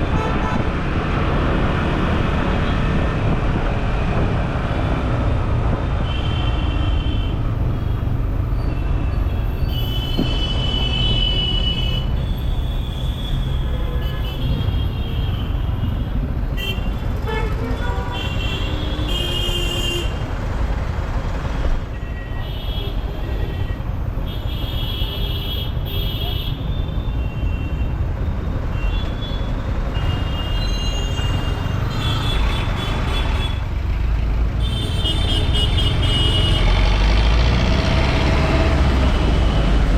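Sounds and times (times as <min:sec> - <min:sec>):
motorcycle road and wind rumble: 0:00.0 - 0:11.3
vehicle horns honking: 0:34.6 - 0:36.7.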